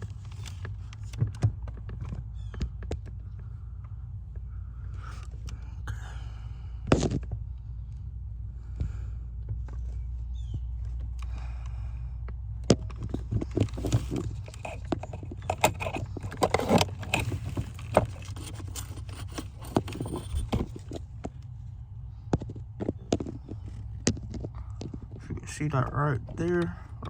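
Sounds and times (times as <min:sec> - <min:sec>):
knocks and scraping in car footwell: 0:00.0 - 0:03.4, 0:06.9 - 0:07.4, 0:12.6 - 0:21.4
steady low hum: 0:00.0 - 0:27.0.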